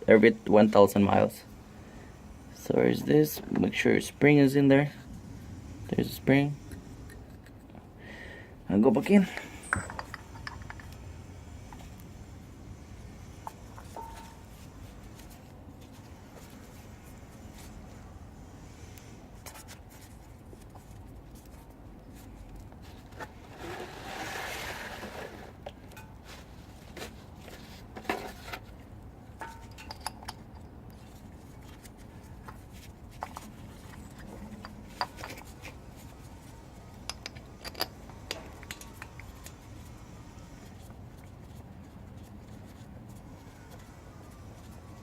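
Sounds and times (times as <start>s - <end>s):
metal parts and tools clicking: 9.2s - 11.0s, 29.4s - 35.8s, 36.4s - 39.6s
scraping rustle: 19.4s - 28.8s.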